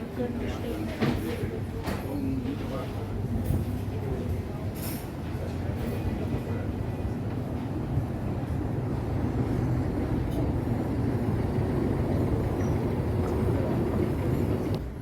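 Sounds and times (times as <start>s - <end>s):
vehicle engine rumbling: 9.2s - 15.0s.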